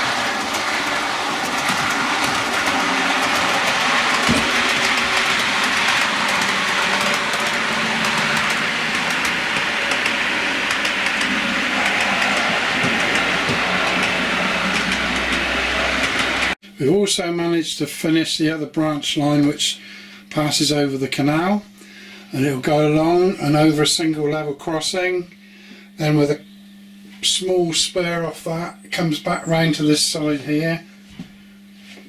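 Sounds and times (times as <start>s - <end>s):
model train motor whirr: 0.0s - 16.6s
wheels clicking over rail joints: 0.0s - 16.6s.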